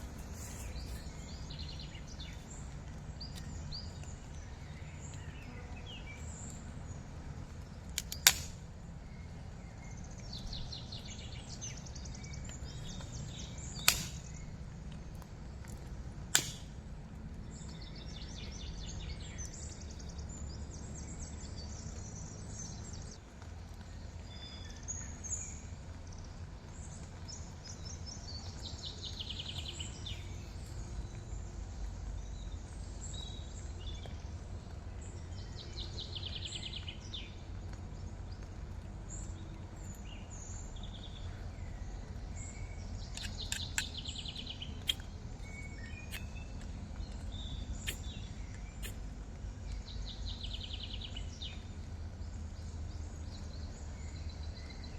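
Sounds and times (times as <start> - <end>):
birds chirping: 0.0 - 16.8, 24.1 - 54.9
low outdoor rumble: 0.0 - 54.9
sharp clicks: 7.9 - 8.6, 13.7 - 14.4, 15.2 - 16.8, 43.0 - 45.1, 46.1 - 48.2.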